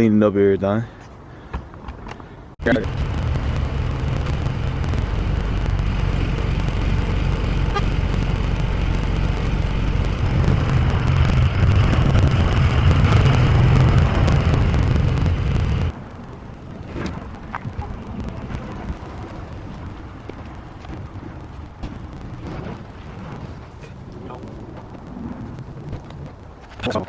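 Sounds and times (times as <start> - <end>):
truck engine running: 2.6 - 16.6.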